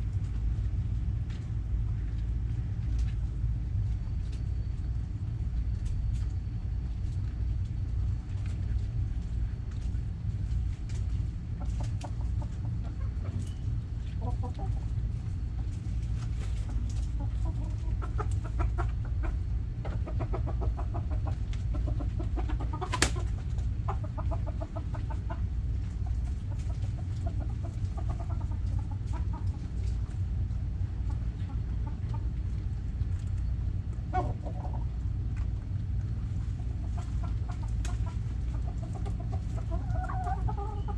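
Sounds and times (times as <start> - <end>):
hens clucking: 8.1 - 40.9.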